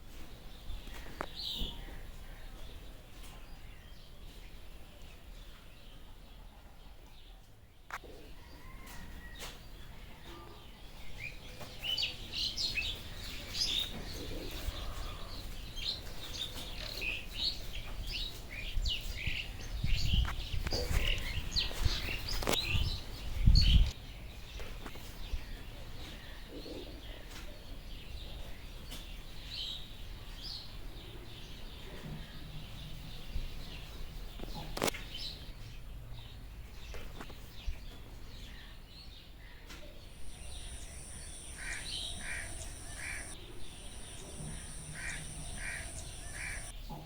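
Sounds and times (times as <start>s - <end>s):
birds chirping: 40.0s - 46.9s.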